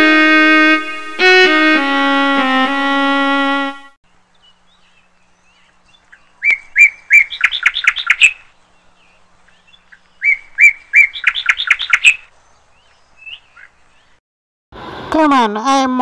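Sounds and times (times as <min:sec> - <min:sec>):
songbird singing: 0:04.0 - 0:14.2.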